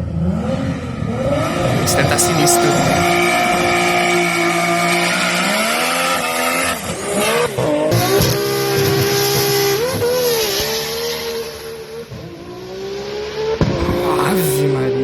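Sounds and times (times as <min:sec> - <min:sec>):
turbo car engine revving hard: 0:02.7 - 0:14.0.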